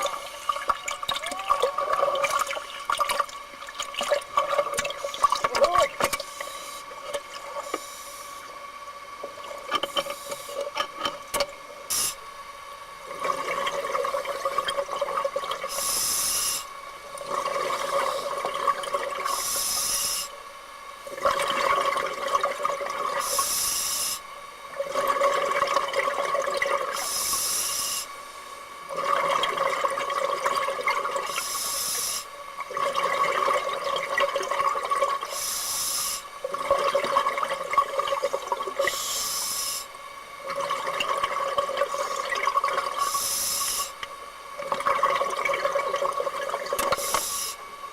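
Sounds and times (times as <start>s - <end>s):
scuba regulator breathing hiss: 15.7s - 16.7s, 19.3s - 20.3s, 23.2s - 24.2s, 27.0s - 28.1s, 31.3s - 32.3s, 35.3s - 36.3s, 38.9s - 39.9s, 43.0s - 43.9s, 47.0s - 47.6s.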